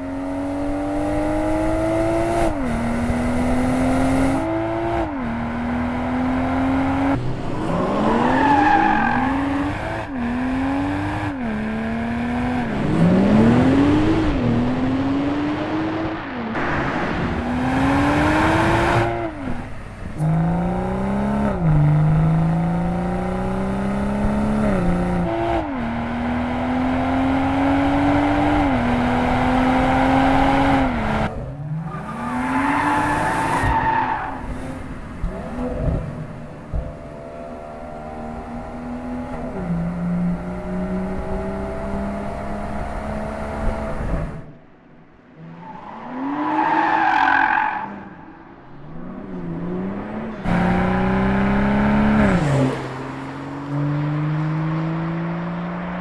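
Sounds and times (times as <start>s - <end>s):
car engine revving hard: 0.1s - 19.6s, 20.2s - 31.3s, 49.4s - 56.0s.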